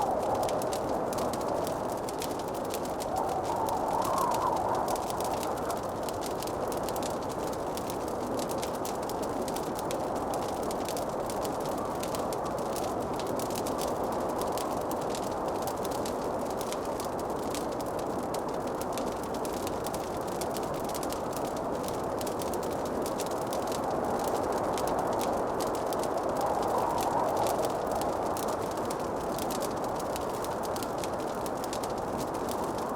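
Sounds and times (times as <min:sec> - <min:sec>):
steady rushing noise: 0:00.0 - 0:07.1
wood fire crackling: 0:00.0 - 0:32.9.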